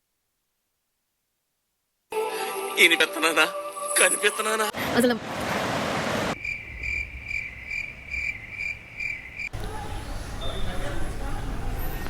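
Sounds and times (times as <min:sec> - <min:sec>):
low traffic rumble: 0:04.8 - 0:12.0
cricket chirping: 0:06.4 - 0:09.6.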